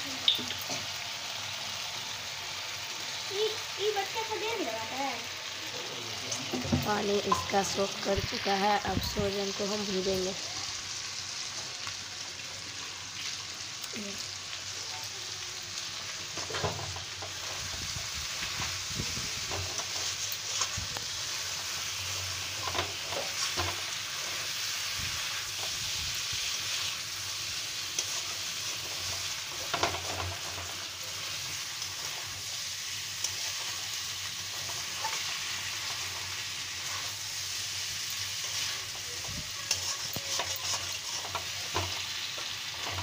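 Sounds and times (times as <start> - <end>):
vegetables sizzling in pan: 0.0 - 43.0
metal spatula scraping pan: 38.3 - 42.1.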